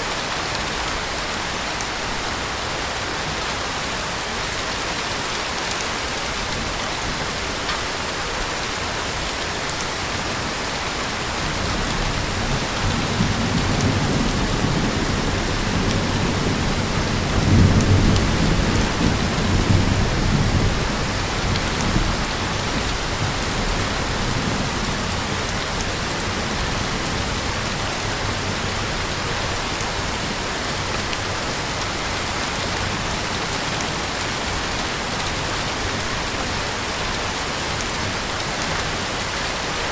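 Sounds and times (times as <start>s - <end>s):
heavy rain falling: 0.0s - 39.9s
low rumble of thunder: 11.4s - 29.0s.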